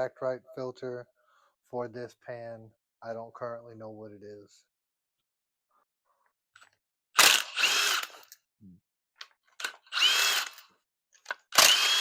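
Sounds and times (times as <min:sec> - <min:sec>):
power drill whining: 0:07.2 - 0:08.4, 0:09.5 - 0:12.0.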